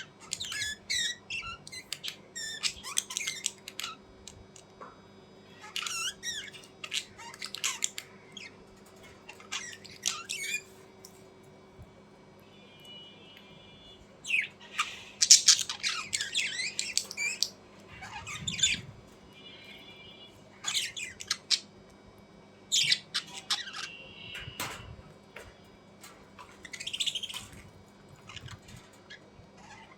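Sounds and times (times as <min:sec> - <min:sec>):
birds squawking harshly: 0:00.0 - 0:04.0, 0:05.5 - 0:10.8, 0:14.2 - 0:21.8, 0:22.6 - 0:29.9
thin bird chirps: 0:00.0 - 0:04.0, 0:05.5 - 0:11.2, 0:12.8 - 0:21.8, 0:22.6 - 0:29.9.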